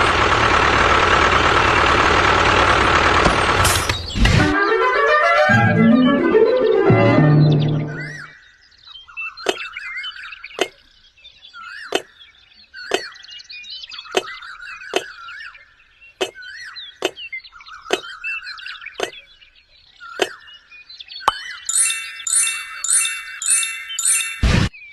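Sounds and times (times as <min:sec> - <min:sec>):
chirping warbling bird calls: 0:07.3 - 0:24.9.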